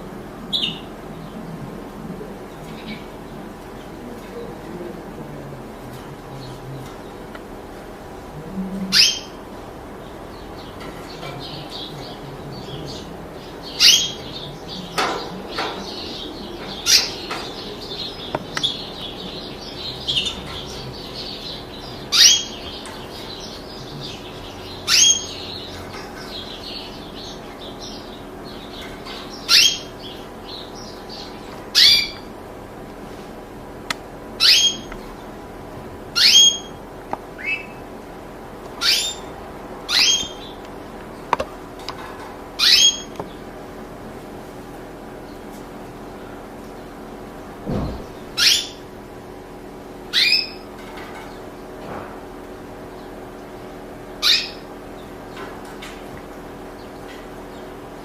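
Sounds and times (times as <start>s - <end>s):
soft bird twittering: 0.4s - 4.7s, 8.6s - 32.4s, 34.4s - 35.4s, 36.1s - 36.8s, 38.7s - 41.6s, 42.6s - 43.6s, 45.1s - 49.0s, 50.0s - 51.8s, 52.8s - 55.6s.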